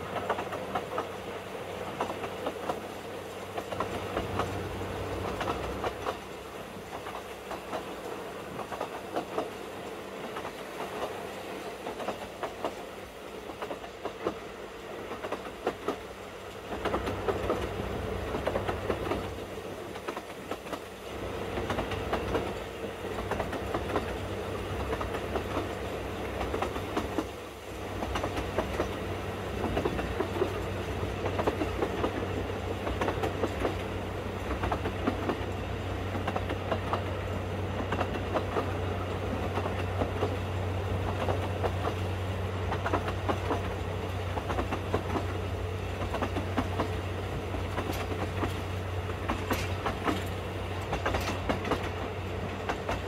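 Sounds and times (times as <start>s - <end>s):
low train drone: 0.0s - 53.0s
wheels clattering over rail joints: 42.7s - 53.0s.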